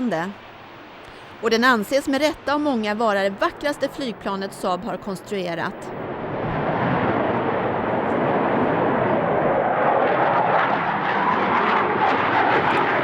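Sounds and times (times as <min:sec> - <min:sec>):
jet fighter flying past: 0:05.9 - 0:13.0.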